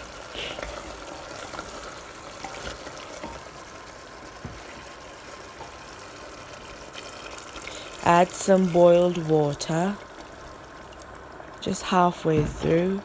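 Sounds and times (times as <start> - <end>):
chicken sizzling in a pot: 0.0 - 13.0.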